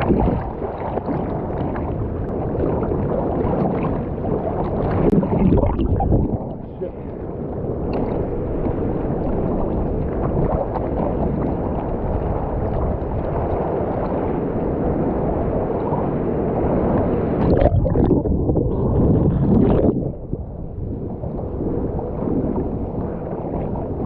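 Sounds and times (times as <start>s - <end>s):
surf water rushing and gurgling: 0.0s - 24.0s.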